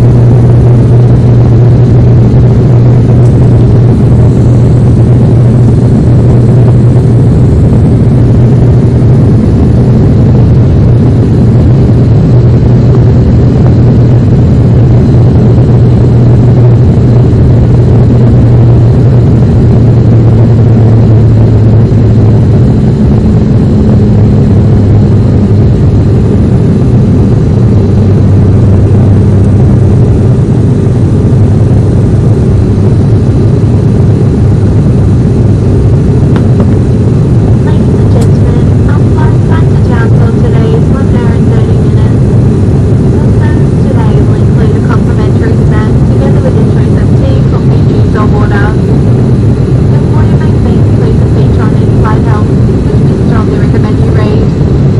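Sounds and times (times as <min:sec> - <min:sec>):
aircraft engine and propeller drone: 0:00.0 - 0:54.9.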